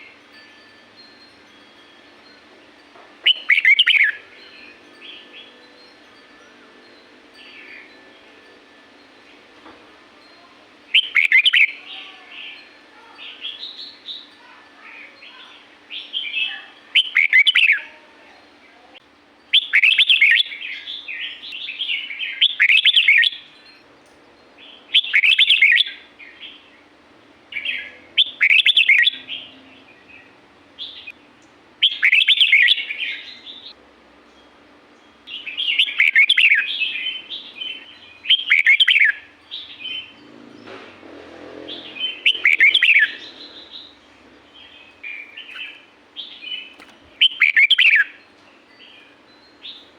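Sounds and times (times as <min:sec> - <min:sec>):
bulbul singing warbling phrases: 0:03.2 - 0:05.6, 0:10.4 - 0:18.9, 0:19.5 - 0:23.6, 0:24.7 - 0:26.7, 0:27.5 - 0:31.2, 0:31.8 - 0:33.8, 0:35.3 - 0:40.2, 0:41.7 - 0:49.9.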